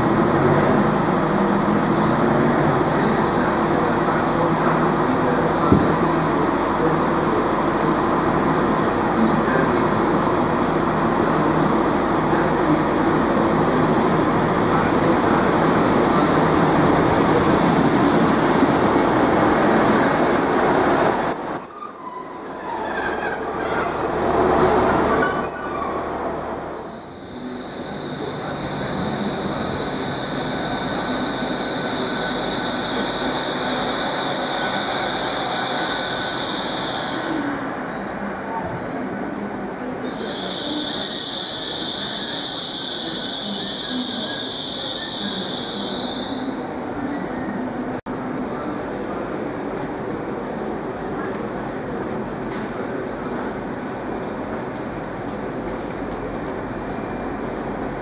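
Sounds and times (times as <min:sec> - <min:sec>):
trains rumbling and clattering: 0:00.0 - 0:58.0
train high-pitched squeal: 0:05.9 - 0:06.8, 0:20.2 - 0:37.5, 0:40.0 - 0:47.6.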